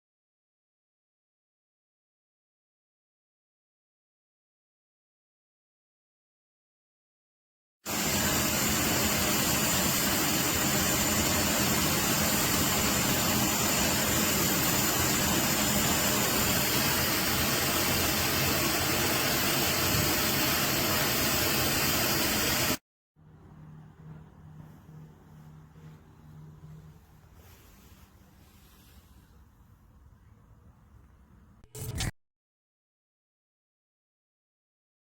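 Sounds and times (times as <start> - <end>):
vacuum cleaner running: 7.9 - 29.0.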